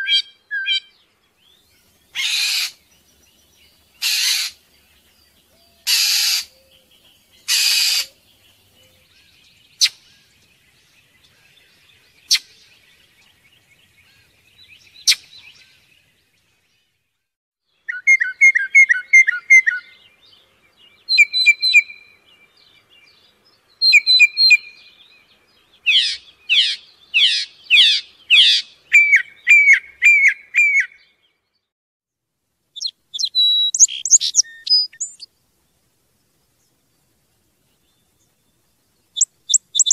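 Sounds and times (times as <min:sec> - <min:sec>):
songbird harsh raspy calls: 0:00.0 - 0:10.5, 0:13.8 - 0:15.9, 0:25.8 - 0:31.1, 0:32.8 - 0:35.3, 0:39.2 - 0:39.9
songbird trilled song: 0:00.0 - 0:17.0, 0:17.7 - 0:31.7, 0:32.8 - 0:35.8, 0:36.5 - 0:39.9.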